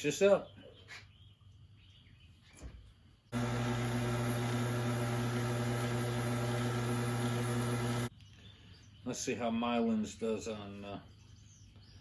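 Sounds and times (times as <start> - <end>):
wood lathe motor humming: 3.4 - 8.1.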